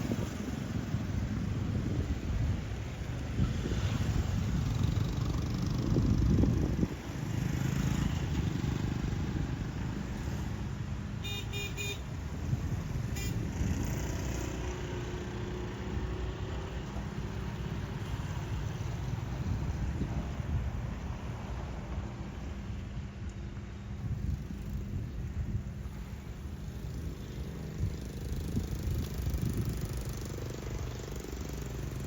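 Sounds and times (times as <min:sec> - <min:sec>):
vehicles passing: 0:00.0 - 0:32.0
vehicle horn toots: 0:11.2 - 0:12.1, 0:13.1 - 0:13.4.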